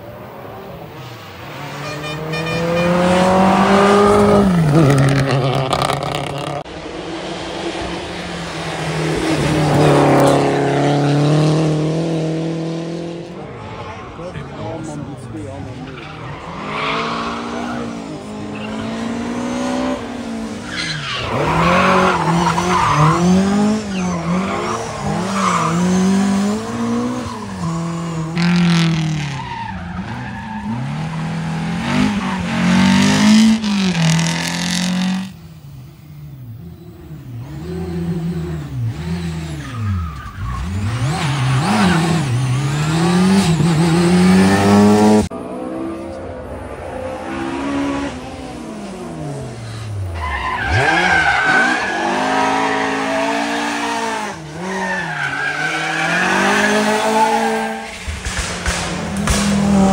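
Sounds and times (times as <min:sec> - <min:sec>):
rally car engine revving: 0:00.9 - 0:35.4, 0:36.4 - 0:59.9.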